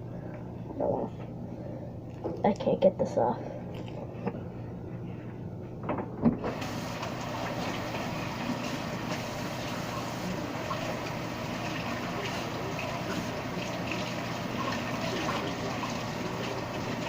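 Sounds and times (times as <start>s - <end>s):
kitchen tap water running: 6.4s - 17.0s.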